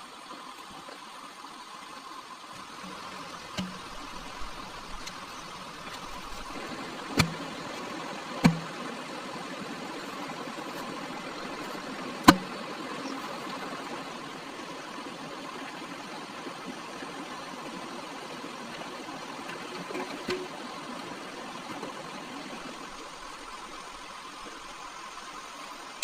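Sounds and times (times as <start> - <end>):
sharp knocks: 3.5 - 4.0, 7.2 - 7.5, 8.4 - 8.8, 12.2 - 12.5.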